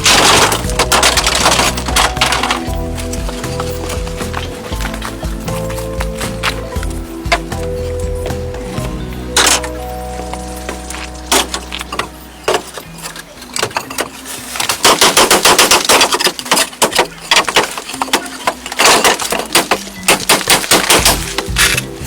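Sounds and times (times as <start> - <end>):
rapid sharp knocks: 14.8 - 17.8.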